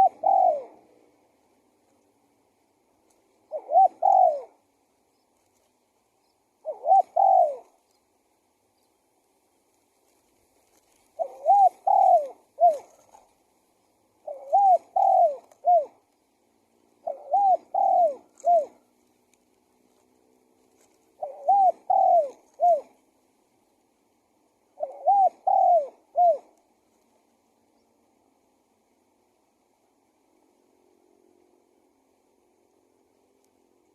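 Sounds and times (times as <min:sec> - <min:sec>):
dove cooing: 0:00.0 - 0:01.2, 0:03.4 - 0:04.7, 0:06.6 - 0:07.9, 0:10.6 - 0:13.3, 0:14.2 - 0:16.1, 0:16.9 - 0:19.0, 0:20.8 - 0:23.1, 0:24.7 - 0:26.6.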